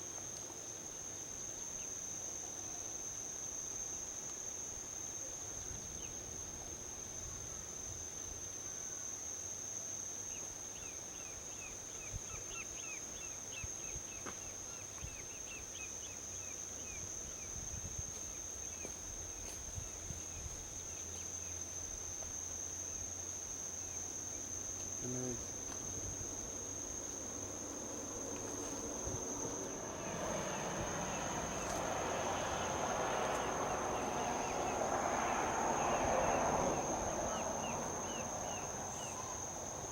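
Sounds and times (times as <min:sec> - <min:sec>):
crickets buzzing: 0:00.0 - 0:39.9
highway traffic rushing: 0:25.8 - 0:39.9.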